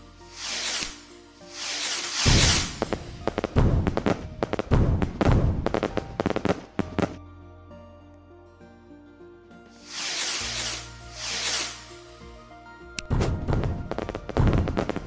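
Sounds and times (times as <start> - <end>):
music playing: 0.0 - 15.0
fireworks crackling and banging: 0.3 - 7.2, 9.8 - 12.2.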